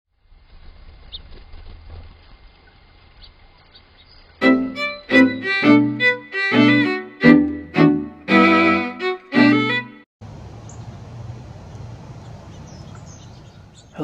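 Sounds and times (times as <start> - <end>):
violin tune: 4.4 - 10.1.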